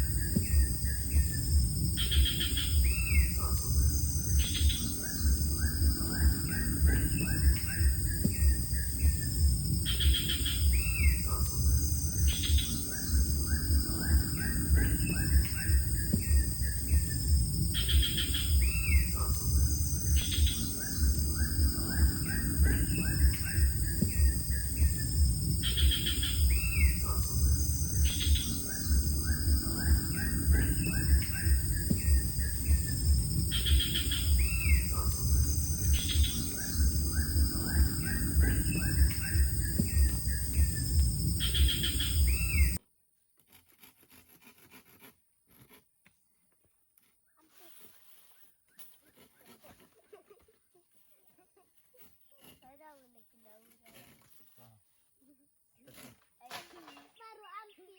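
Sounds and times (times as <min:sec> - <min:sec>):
bird chirps and whistle: 0:00.0 - 0:42.8
steady low rumble: 0:00.0 - 0:42.8.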